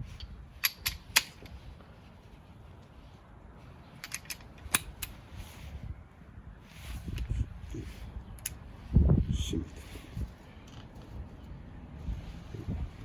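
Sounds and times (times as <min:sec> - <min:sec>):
ratcheting wrench clicks: 0:00.2 - 0:01.4, 0:04.0 - 0:05.2.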